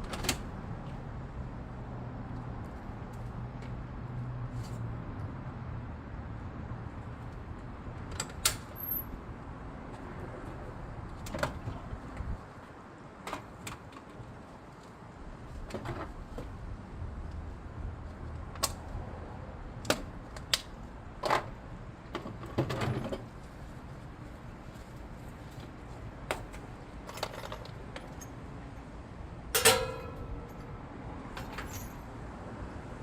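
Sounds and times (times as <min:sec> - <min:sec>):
metal tools clicking and knocking: 0:29.6 - 0:32.1.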